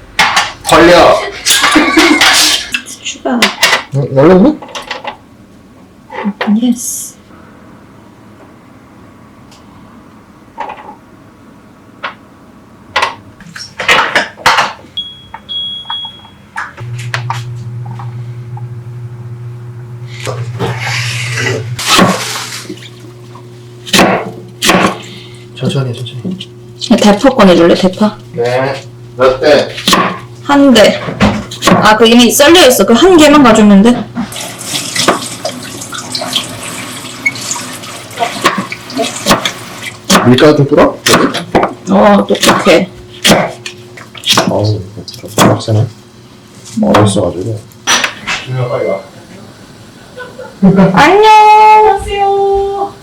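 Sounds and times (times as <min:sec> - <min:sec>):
appliance electric hum: 0:00.0 - 0:53.0
dishes and utensils clattering: 0:01.4 - 0:03.9
kitchen tap running into sink: 0:34.2 - 0:40.0.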